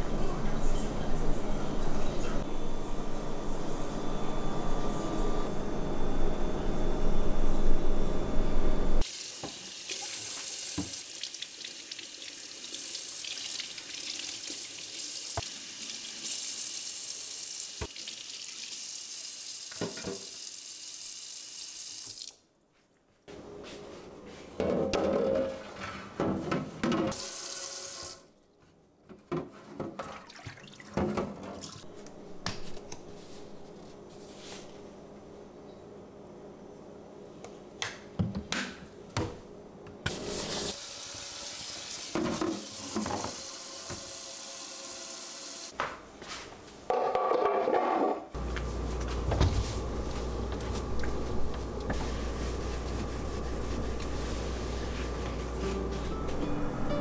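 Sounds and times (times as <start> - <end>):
tap running into sink: 10.7 - 11.0.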